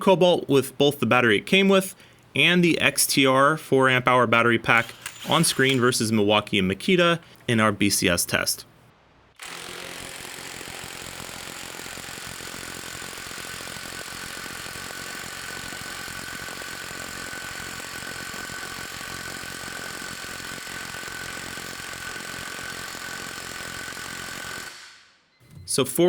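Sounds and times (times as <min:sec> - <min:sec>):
impact wrench hammering: 0:04.7 - 0:06.0.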